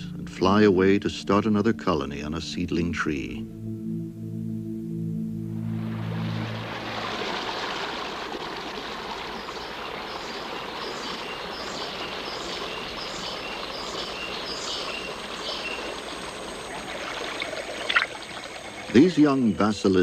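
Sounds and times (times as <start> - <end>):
running water: 5.7 - 20.0.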